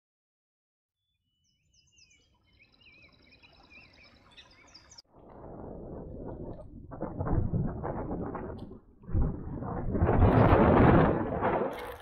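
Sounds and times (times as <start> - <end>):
high bird chirps and trills: 1.0 - 5.1.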